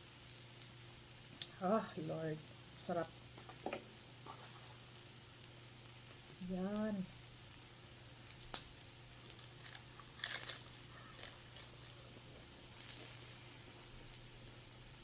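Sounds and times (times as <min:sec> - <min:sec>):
soft hiss: 0:00.0 - 0:15.0
crunching and chewing: 0:09.2 - 0:13.2.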